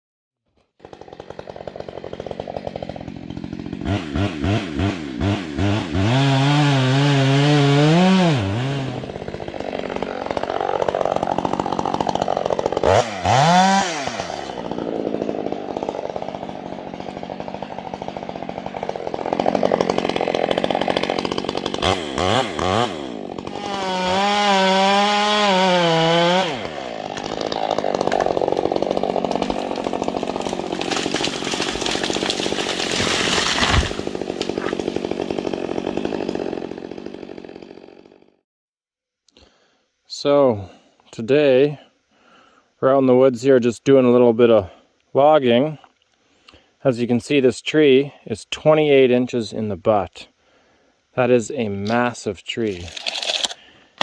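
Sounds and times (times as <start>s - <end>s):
chainsaw revving: 0.8s - 38.3s, 51.8s - 53.7s.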